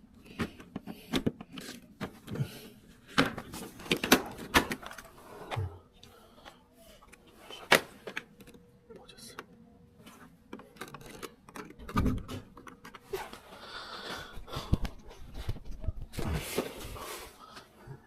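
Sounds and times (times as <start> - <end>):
plastic parts clicking and knocking: 0.2 - 2.4, 10.4 - 13.1.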